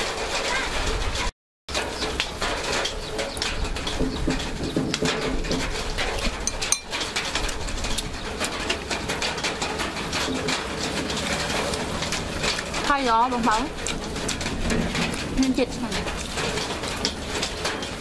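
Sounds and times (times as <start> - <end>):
outdoor background noise: 0.0 - 18.0
small clicks from eating: 4.9 - 18.0.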